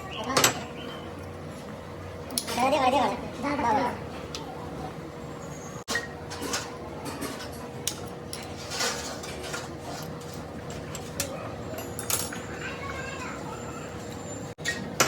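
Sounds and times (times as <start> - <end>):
metal parts and tools clinking: 6.3 - 12.5.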